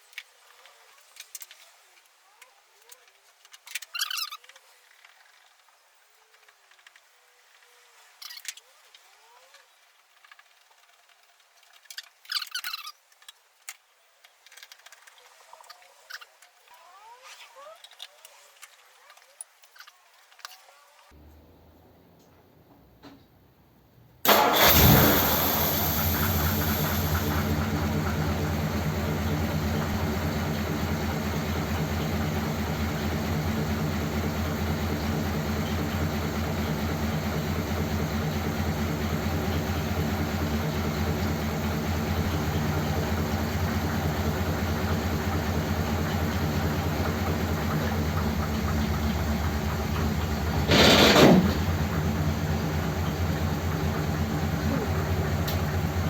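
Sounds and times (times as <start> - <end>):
car engine idling: 24.3 - 56.0.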